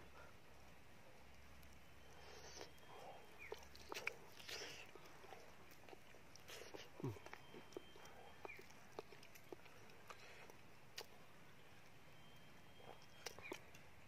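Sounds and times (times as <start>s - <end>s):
mouth clicks from chewing: 1.6s - 11.2s, 12.3s - 13.8s.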